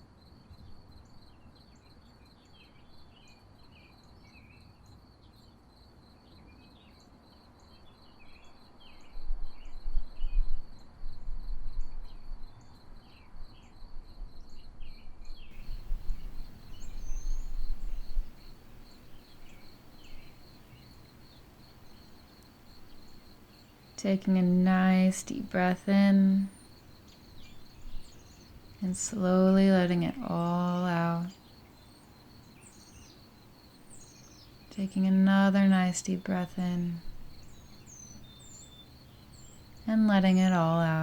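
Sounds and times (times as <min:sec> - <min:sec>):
bird chirps: 0:15.6 - 0:34.9, 0:36.1 - 0:41.0
crickets trilling: 0:15.6 - 0:41.0.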